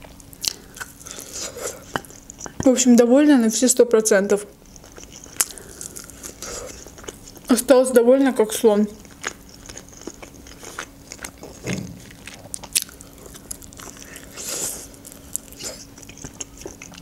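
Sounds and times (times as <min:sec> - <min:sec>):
biting and chewing chicken: 0:00.0 - 0:02.7, 0:04.6 - 0:07.6, 0:09.0 - 0:17.0
mouth clicks and crunches: 0:00.1 - 0:02.7, 0:04.6 - 0:07.5, 0:09.0 - 0:17.0.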